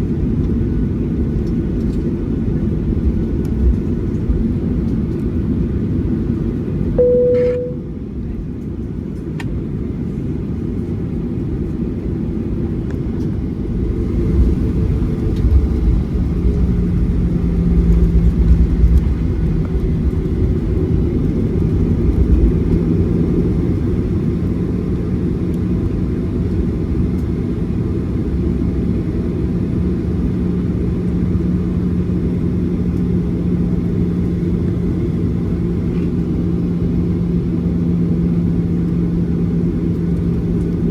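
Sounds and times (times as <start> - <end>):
aircraft engine hum: 0.0 - 40.9
single tone: 7.0 - 8.0.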